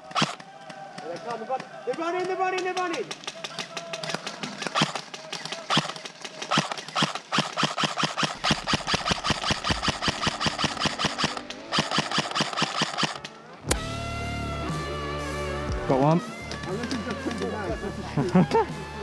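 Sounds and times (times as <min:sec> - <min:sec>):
airsoft gun rapid firing: 0:00.0 - 0:01.3, 0:01.9 - 0:13.8.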